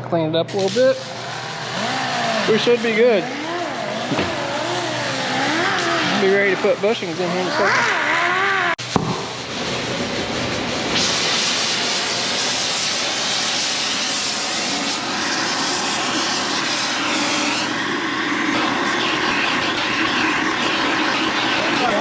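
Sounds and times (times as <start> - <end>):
metal cutting hiss: 9.4 - 22.0.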